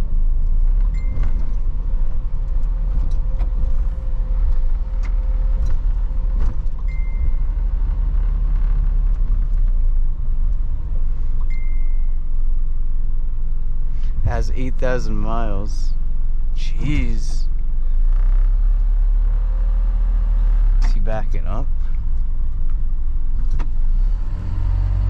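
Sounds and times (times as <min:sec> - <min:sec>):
truck engine and road rumble: 0:00.0 - 0:25.0
rattles and clicks: 0:00.4 - 0:09.8.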